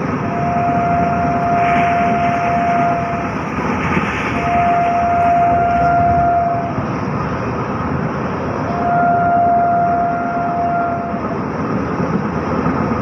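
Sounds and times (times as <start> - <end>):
train horn blasts: 0.0 - 6.9, 8.6 - 11.5
rain: 0.0 - 8.6
train wheels rushing: 0.0 - 13.0.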